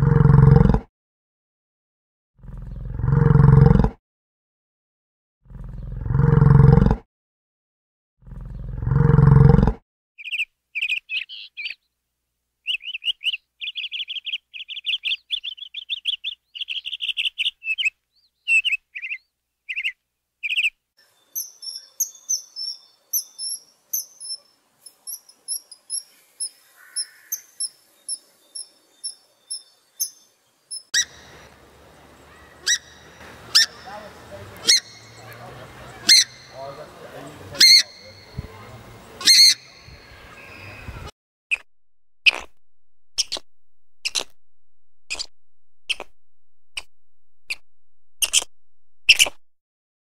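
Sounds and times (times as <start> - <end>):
small birds chirping: 10.2 - 12.0, 12.6 - 41.7, 43.2 - 43.4, 44.0 - 44.4, 45.1 - 45.3, 45.9 - 46.1, 48.2 - 48.5
sharp clicks: 43.2 - 44.4, 45.9 - 46.2.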